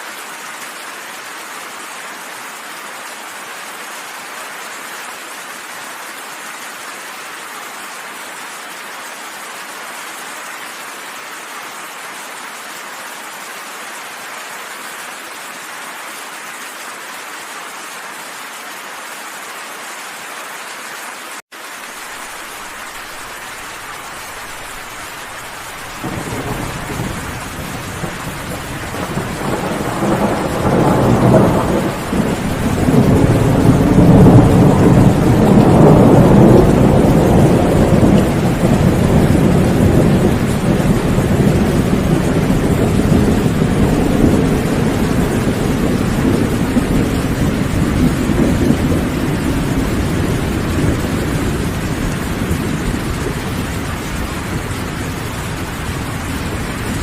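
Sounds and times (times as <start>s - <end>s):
steady rain: 0.0s - 57.0s
rolling thunder: 24.3s - 57.0s.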